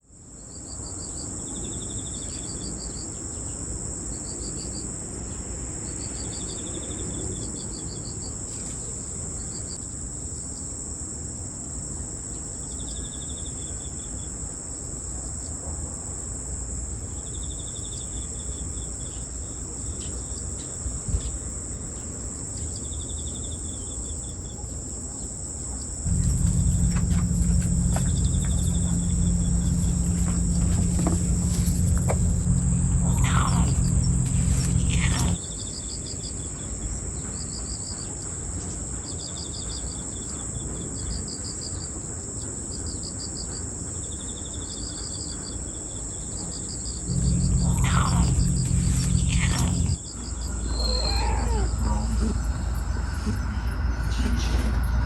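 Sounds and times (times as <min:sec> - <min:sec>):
insect pulsed chirps: 0:26.1 - 0:35.4, 0:47.1 - 0:50.0
insects trilling: 0:26.1 - 0:35.4, 0:47.1 - 0:53.1
loud low hum: 0:26.1 - 0:35.4, 0:47.1 - 0:50.0.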